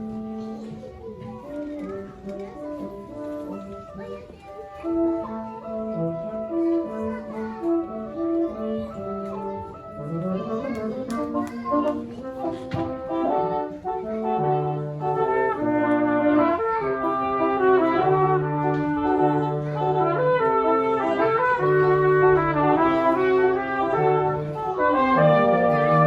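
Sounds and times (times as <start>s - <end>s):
brass quartet playing chords: 12.0s - 26.0s.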